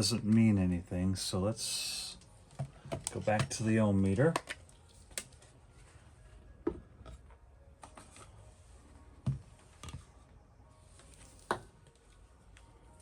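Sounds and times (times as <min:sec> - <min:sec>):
faint room noise: 0:00.0 - 0:13.0.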